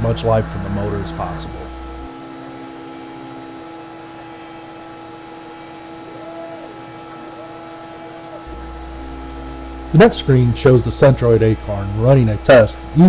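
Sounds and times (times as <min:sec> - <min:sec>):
high-pitched drive tone: 0:00.0 - 0:02.1, 0:08.5 - 0:13.0
router spindle whine: 0:00.0 - 0:13.0.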